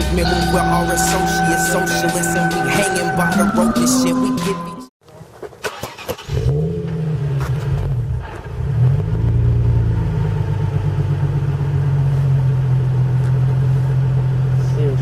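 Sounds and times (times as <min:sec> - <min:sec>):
car engine starting and idling: 0:05.6 - 0:15.0.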